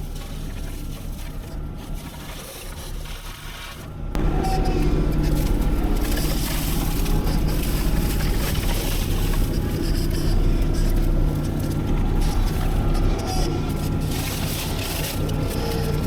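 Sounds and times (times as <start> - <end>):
heavy machinery engine running: 3.9 - 16.0.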